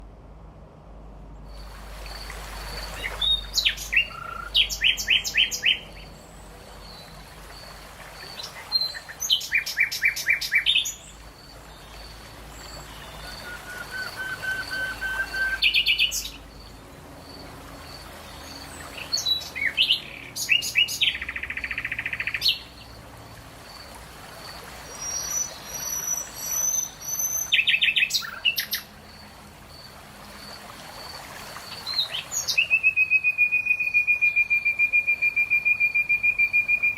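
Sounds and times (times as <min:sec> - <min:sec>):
songbird singing high notes: 0:12.9 - 0:16.4, 0:31.9 - 0:36.9.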